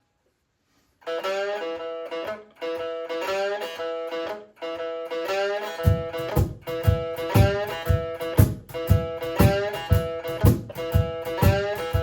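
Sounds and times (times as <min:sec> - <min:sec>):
one-string guitar blues riff: 0:01.0 - 0:12.0
low cajon thumps: 0:05.9 - 0:12.0.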